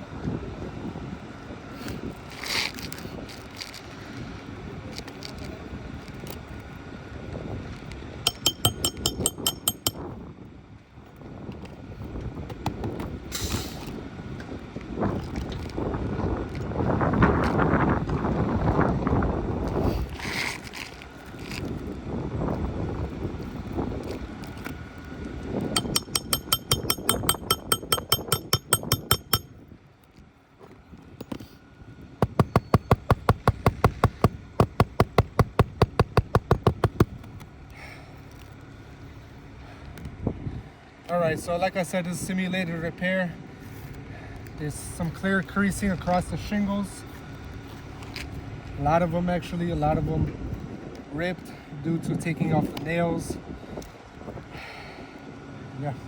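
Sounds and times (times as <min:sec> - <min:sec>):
outdoor wind: 0:00.0 - 0:56.0
hammer tapping a nail: 0:08.3 - 0:10.0, 0:25.8 - 0:29.5, 0:32.2 - 0:37.3
wind rumbling on microphone: 0:13.9 - 0:20.2.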